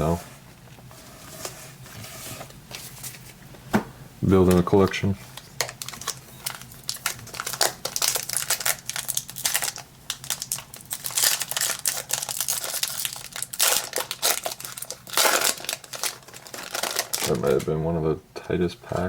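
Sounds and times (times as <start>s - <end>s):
foil wrapper crinkling and tearing: 4.5s - 17.6s.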